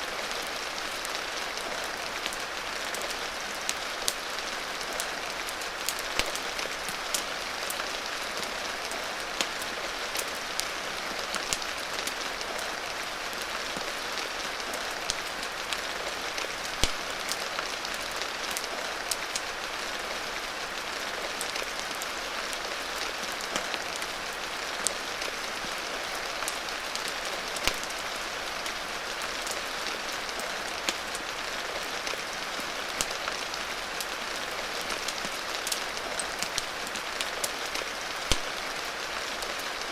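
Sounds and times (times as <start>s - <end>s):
steady rain hissing: 0.0s - 39.9s
wood fire crackling and popping: 5.8s - 7.8s, 8.8s - 12.7s, 14.6s - 19.5s, 26.2s - 28.1s, 32.0s - 38.8s.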